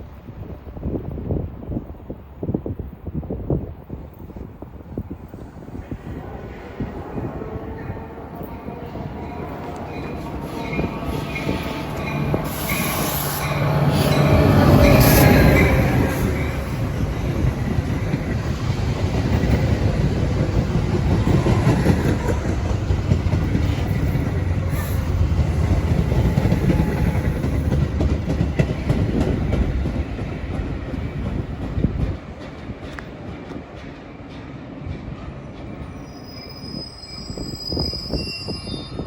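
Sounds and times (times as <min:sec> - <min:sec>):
train wheels clickety-clack: 0:08.4 - 0:36.0.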